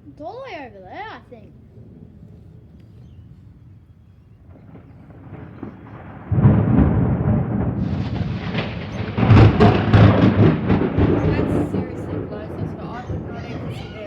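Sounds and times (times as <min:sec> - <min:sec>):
thunder rumbling: 0:00.0 - 0:14.0
loud thunder crack: 0:01.4 - 0:14.0.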